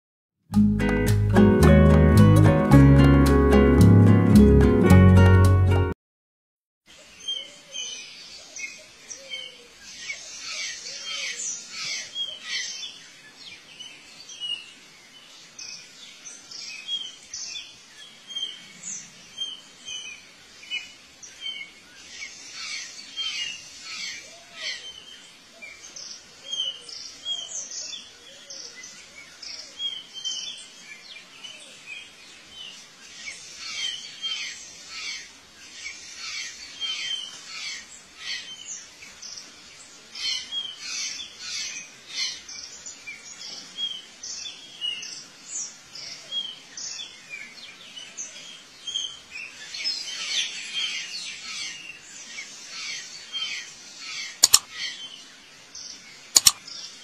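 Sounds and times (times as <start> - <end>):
birds chirping: 20.7 - 57.0.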